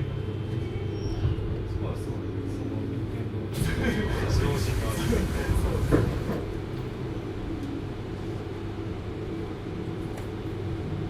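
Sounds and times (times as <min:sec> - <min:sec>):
train wheels rumbling on rail: 0:03.6 - 0:07.8.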